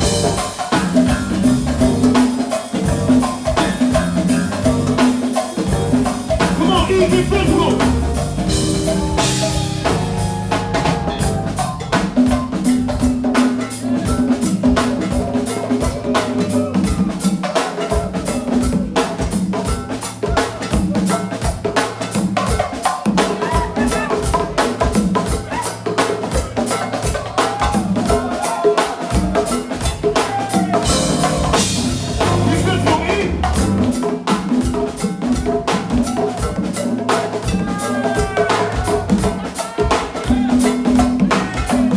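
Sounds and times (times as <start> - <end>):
bass line: 0.0 - 2.2, 2.8 - 5.1, 5.7 - 13.0, 30.8 - 34.0
drum kit beat with rimshots: 0.0 - 41.9
live band instrumental groove: 0.0 - 41.9.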